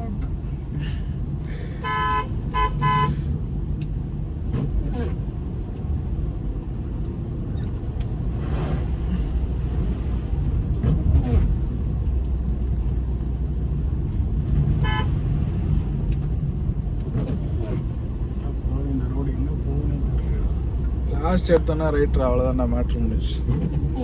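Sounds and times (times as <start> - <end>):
road and engine rumble: 0.0 - 24.0
vehicle horn toot: 1.8 - 3.2, 14.8 - 15.2.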